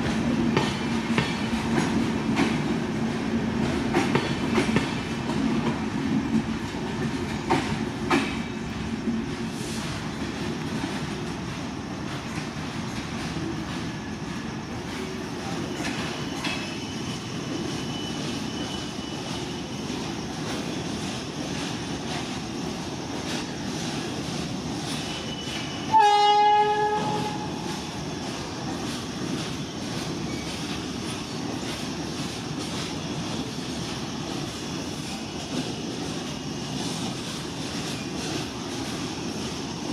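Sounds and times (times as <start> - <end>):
train wheels rumbling on track: 0.0 - 39.9
train horn blast: 25.9 - 27.7.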